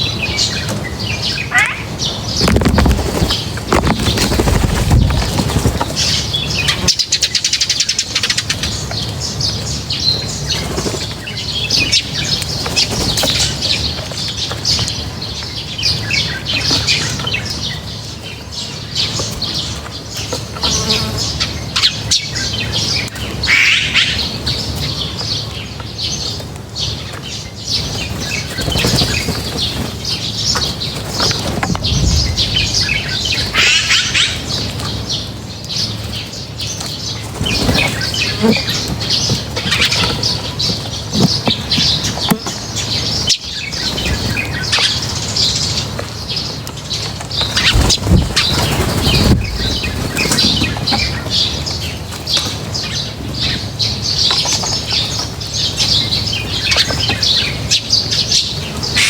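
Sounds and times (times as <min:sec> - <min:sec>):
birds chirping: 0:00.0 - 0:59.0
wing flutters: 0:01.5 - 0:07.0, 0:27.8 - 0:35.3, 0:37.2 - 0:42.0, 0:47.2 - 0:51.5.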